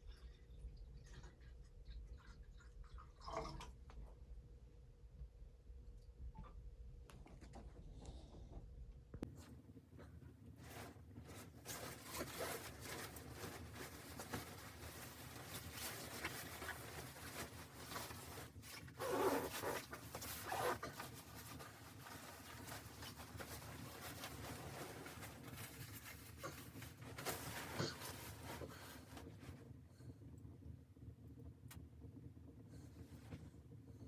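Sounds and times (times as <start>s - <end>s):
rustling and scraping handling noises: 9.2s - 29.7s.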